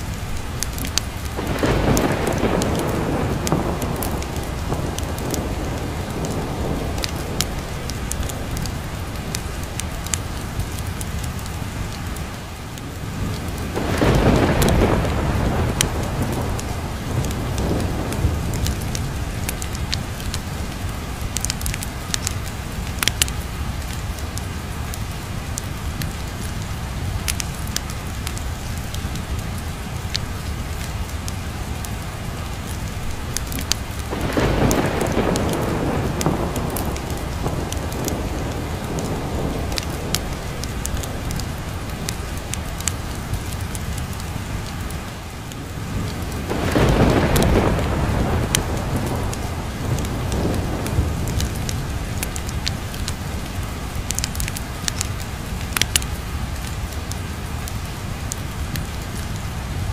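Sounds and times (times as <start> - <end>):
heavy rain: 0.0 - 59.9
thunder rumbling: 0.1 - 59.9.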